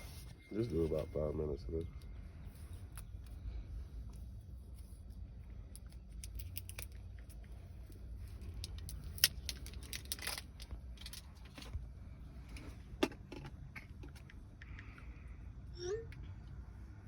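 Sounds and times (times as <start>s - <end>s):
steady low rumble: 0.0s - 17.0s
light clicks and rattles: 5.7s - 11.8s.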